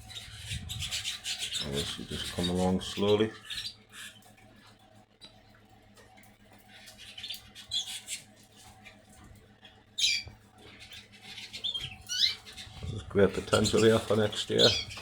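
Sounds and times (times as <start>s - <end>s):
canaries chirping: 0.0s - 5.4s, 6.2s - 15.0s.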